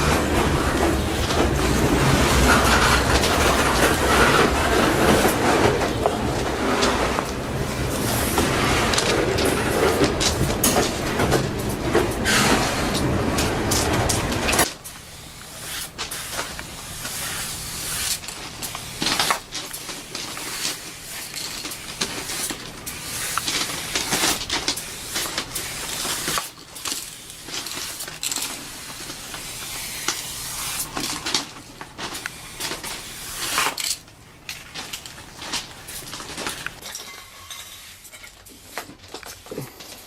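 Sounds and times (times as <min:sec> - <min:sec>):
spray-paint cans hissing: 0:14.8 - 0:31.2.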